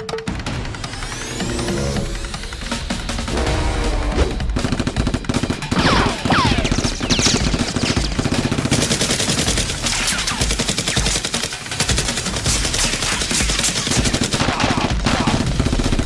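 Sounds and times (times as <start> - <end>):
falling whistling sweeps: 0.6 - 4.4.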